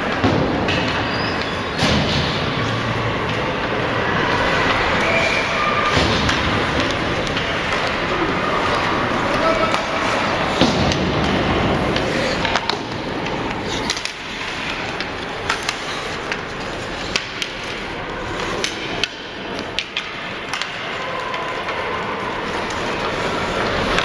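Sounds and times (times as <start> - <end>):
sticks clacking on puck: 0.0 - 24.0
skates scraping ice: 0.7 - 24.0
puck knocking against boards: 8.7 - 20.8.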